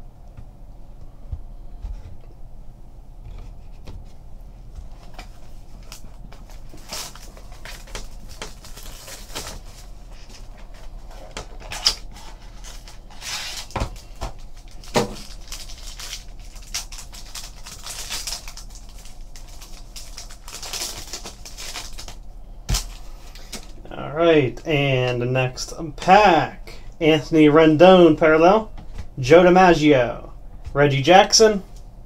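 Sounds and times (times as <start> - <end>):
cards and wrapper rustling: 4.9 - 23.8.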